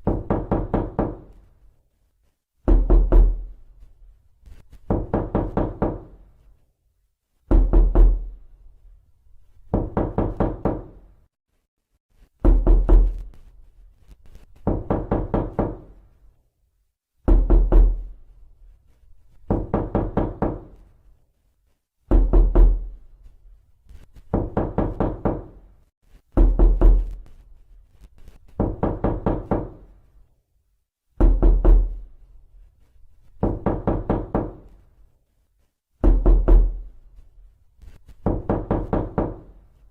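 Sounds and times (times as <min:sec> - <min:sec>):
knocking on a door: 0:00.0 - 0:01.4, 0:02.6 - 0:03.6, 0:04.8 - 0:06.2, 0:07.5 - 0:08.4, 0:09.7 - 0:11.0, 0:12.4 - 0:13.3, 0:14.6 - 0:16.0, 0:17.2 - 0:18.1, 0:19.5 - 0:20.8, 0:22.1 - 0:23.0, 0:24.2 - 0:25.6, 0:26.4 - 0:27.2, 0:28.6 - 0:29.9, 0:31.2 - 0:32.1, 0:33.4 - 0:34.8, 0:36.0 - 0:36.9, 0:38.2 - 0:39.6.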